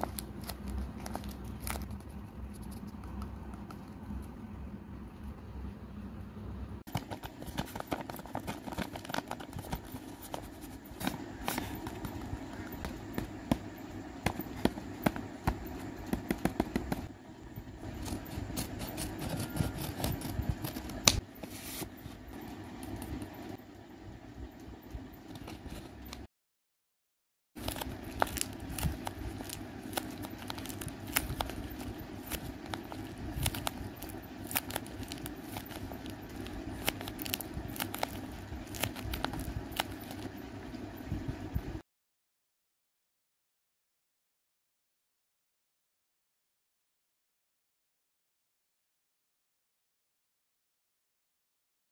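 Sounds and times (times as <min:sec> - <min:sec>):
paper rustling and crinkling: 0:00.0 - 0:03.0, 0:06.9 - 0:12.4, 0:17.9 - 0:23.3, 0:25.2 - 0:26.3, 0:27.6 - 0:40.3
sharp paper clicks and taps: 0:13.1 - 0:17.1.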